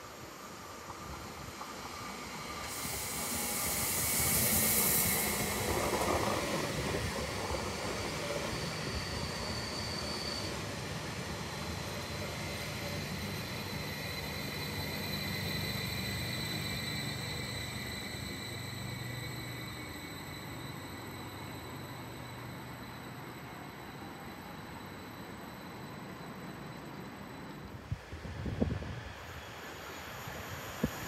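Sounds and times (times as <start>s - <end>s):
train rumbling on rails: 0.0s - 31.0s
faint high squealing: 0.3s - 31.0s
loud hiss: 2.2s - 6.1s.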